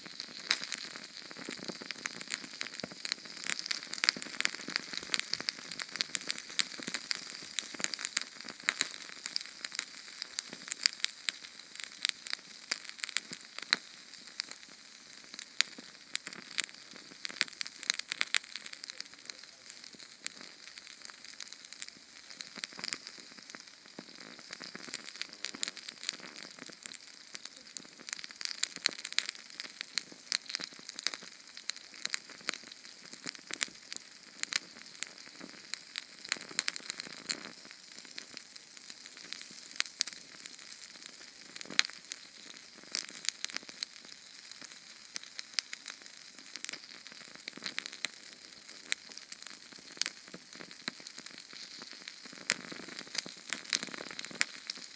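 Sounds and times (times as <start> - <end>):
small flame sizzling and crackling: 0.0 - 54.9.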